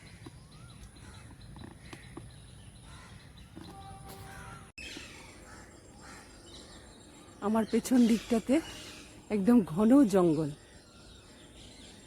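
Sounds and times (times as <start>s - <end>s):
faint bird calls: 0.0s - 6.9s.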